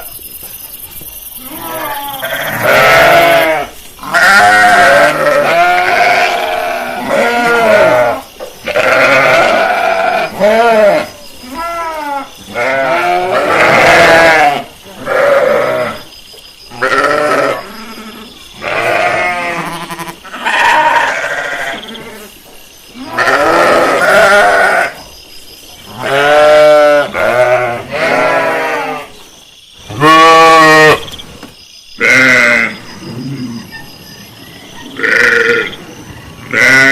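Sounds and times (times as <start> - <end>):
sheep bleating: 1.4 - 16.0, 16.8 - 17.6, 18.6 - 21.8, 23.0 - 25.0, 26.0 - 29.1, 29.9 - 31.0, 32.0 - 32.8, 35.0 - 35.7, 36.5 - 36.9.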